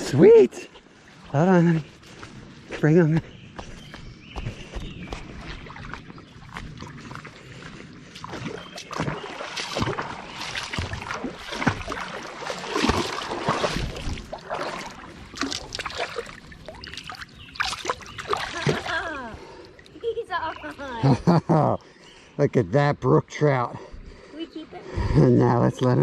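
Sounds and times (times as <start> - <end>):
water splashing and sloshing: 0.0 - 22.3.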